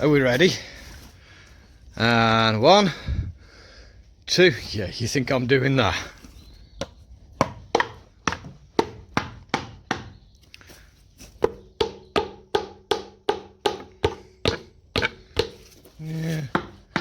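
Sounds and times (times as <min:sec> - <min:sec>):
hammer knocking on metal: 0:11.4 - 0:15.6.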